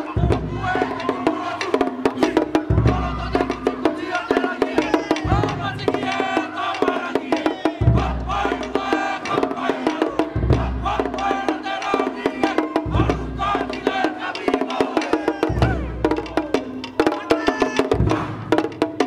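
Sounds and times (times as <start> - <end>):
group singing together: 0.0 - 18.7
fast wooden percussion: 0.0 - 19.0
deep drum hits: 5.2 - 6.6, 7.8 - 9.4, 10.1 - 11.7, 12.7 - 13.8, 18.0 - 19.0.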